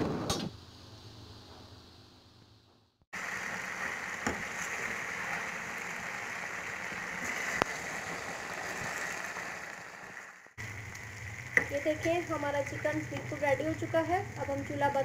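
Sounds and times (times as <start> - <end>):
chicken sizzling in a pan: 3.2 - 15.0.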